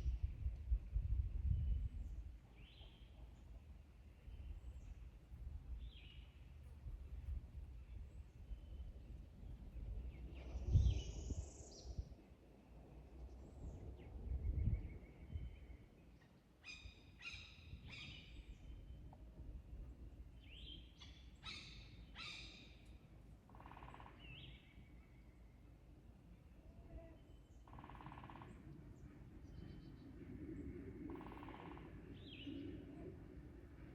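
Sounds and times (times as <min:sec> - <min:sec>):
bird calls downward-sweeping: 0:31.0 - 0:33.2.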